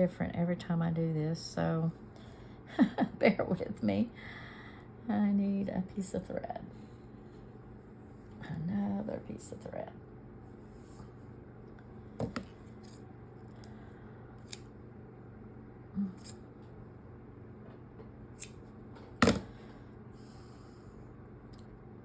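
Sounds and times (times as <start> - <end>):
scissors snipping thread: 14.4 - 14.7, 16.1 - 16.4, 18.4 - 18.7.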